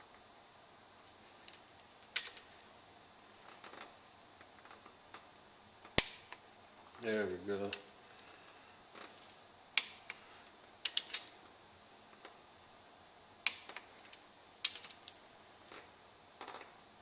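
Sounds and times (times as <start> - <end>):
torque wrench clicks: 9.8 - 10.2, 10.8 - 11.3, 13.4 - 13.8.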